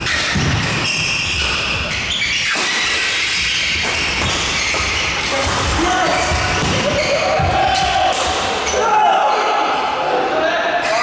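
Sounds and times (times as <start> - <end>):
shoes squeaking: 0.0 - 8.0.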